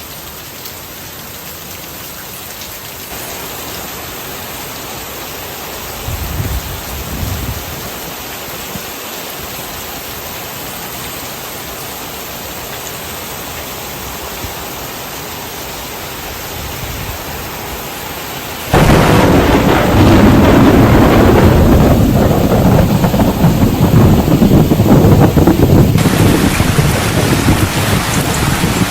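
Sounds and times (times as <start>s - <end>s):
heavy rain: 0.0s - 28.9s
low thunder rumbles: 18.7s - 28.9s
rough rushing rumble: 18.7s - 28.9s.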